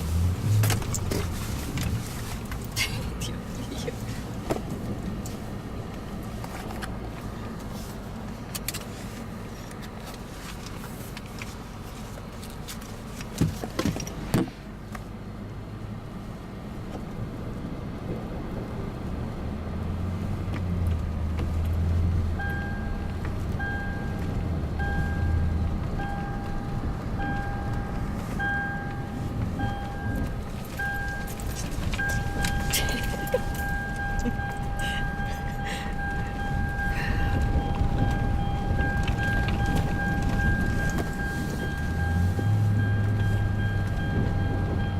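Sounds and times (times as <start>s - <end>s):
vehicle engine humming: 0.0s - 44.9s
electronic beep: 24.8s - 44.9s.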